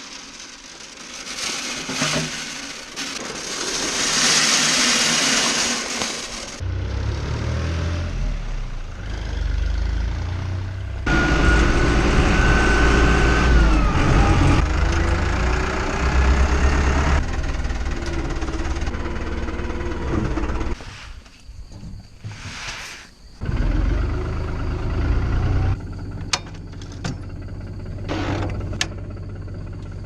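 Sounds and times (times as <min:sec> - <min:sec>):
tractor engine running: 0:08.4 - 0:20.8, 0:23.4 - 0:30.0.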